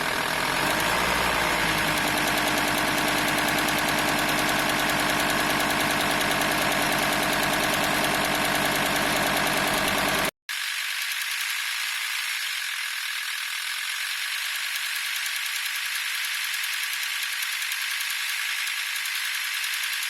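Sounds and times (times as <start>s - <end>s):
diesel engine running: 0.0s - 10.3s
fast even belt rattle: 1.8s - 20.0s.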